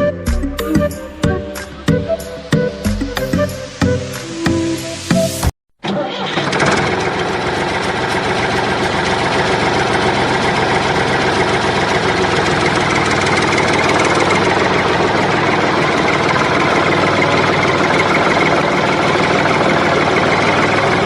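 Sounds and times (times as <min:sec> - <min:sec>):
tractor engine idling: 0:05.8 - 0:21.0.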